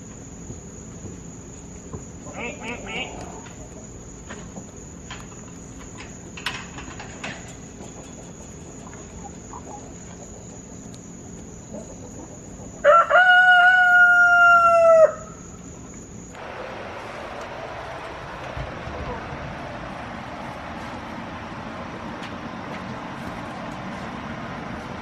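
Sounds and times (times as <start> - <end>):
rooster crowing: 12.7 - 15.6.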